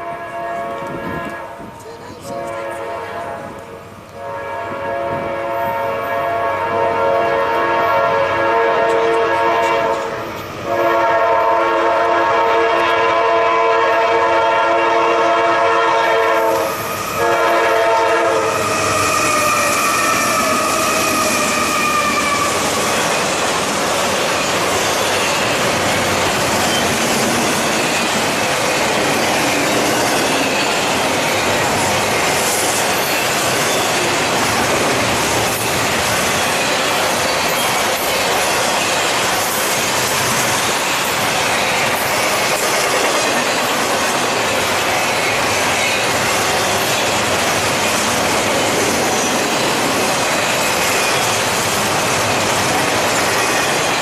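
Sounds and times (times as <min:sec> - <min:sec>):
locomotive air horn blasts: 0:00.0 - 0:01.7, 0:02.3 - 0:03.6, 0:04.2 - 0:22.6
train wheels clacking on rails: 0:08.1 - 0:10.9, 0:16.2 - 0:54.0.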